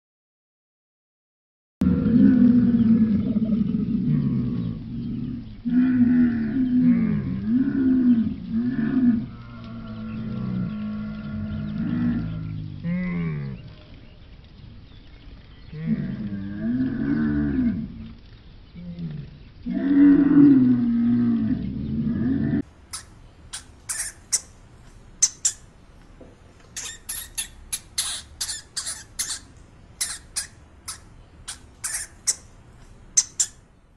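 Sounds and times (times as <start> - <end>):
short high-pitched squeaks: 26.7 - 31.0.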